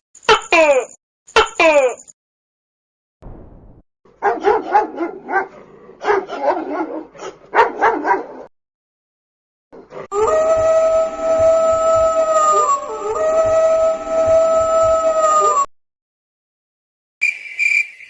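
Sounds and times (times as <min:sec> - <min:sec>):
dog barking: 0:04.2 - 0:08.5
dog howling: 0:10.1 - 0:15.7.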